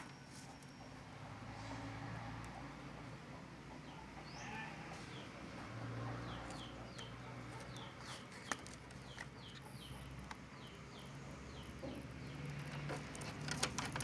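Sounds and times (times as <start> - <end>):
bird chirping: 6.1 - 13.5.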